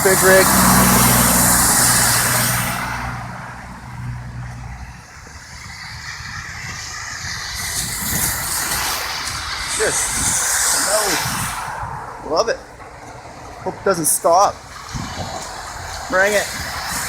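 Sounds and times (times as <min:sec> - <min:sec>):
tyres hissing through slush: 0:00.0 - 0:03.6, 0:04.8 - 0:12.5, 0:13.7 - 0:17.0
vehicle tyre hiss: 0:00.0 - 0:12.7, 0:13.9 - 0:17.0
truck engine drone: 0:00.0 - 0:17.0.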